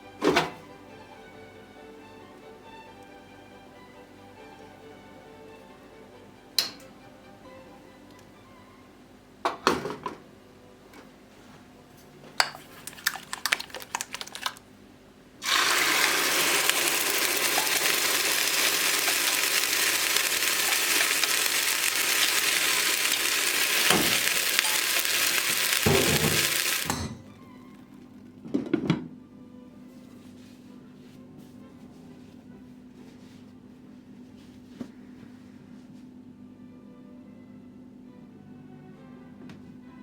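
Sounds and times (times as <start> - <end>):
utensils clinking: 12.4 - 14.6, 15.5 - 28.0
food sizzling in a pan: 15.4 - 27.1.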